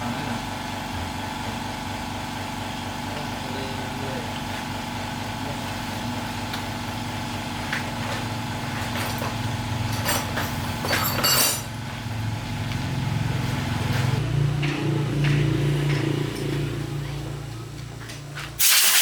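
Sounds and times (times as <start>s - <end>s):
short hissing bursts: 18.6s - 19.0s.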